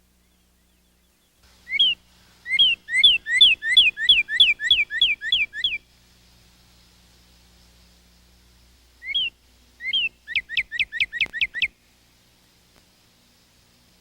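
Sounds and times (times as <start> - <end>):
songbird whistling: 0.2 - 5.8, 9.0 - 11.8.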